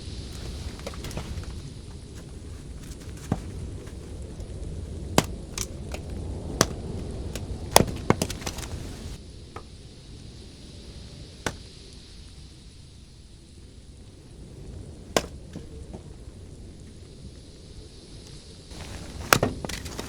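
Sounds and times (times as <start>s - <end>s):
sharp irregular knocks: 0.3s - 9.2s, 11.5s - 11.7s, 15.1s - 15.7s, 18.7s - 20.0s.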